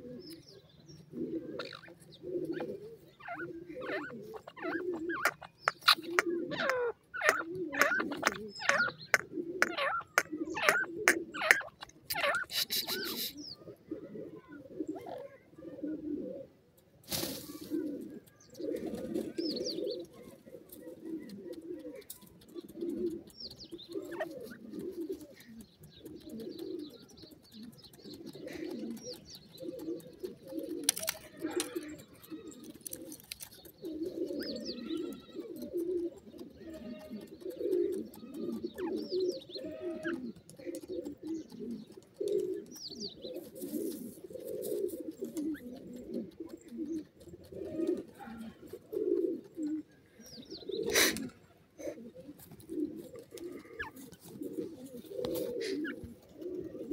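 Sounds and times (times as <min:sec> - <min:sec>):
birds scratching in dry soil: 0:00.0 - 0:56.9
low cooing bird calls: 0:00.0 - 0:56.9
higher bird chirps: 0:00.2 - 0:13.7.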